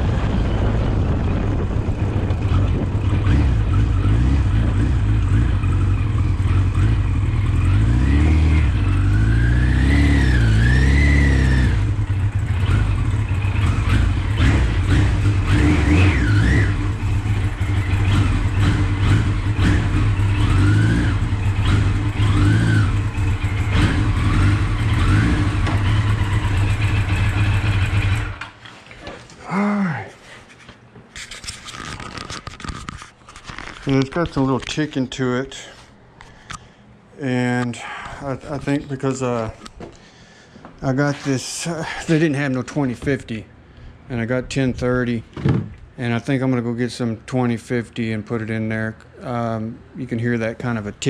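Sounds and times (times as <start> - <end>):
motorcycle engine revving: 0.0 - 28.6.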